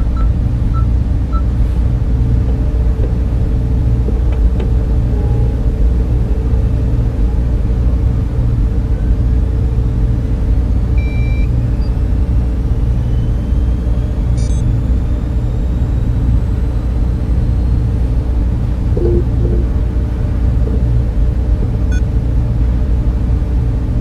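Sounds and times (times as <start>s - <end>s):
server fans droning: 0.0s - 24.0s
short electronic beep: 19.0s - 19.7s.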